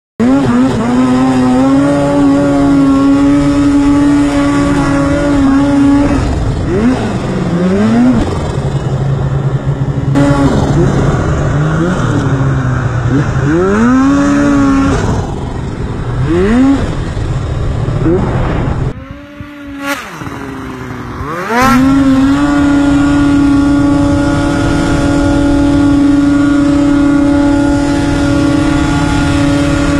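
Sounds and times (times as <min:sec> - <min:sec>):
snowmobile engine revving: 0:00.2 - 0:29.9.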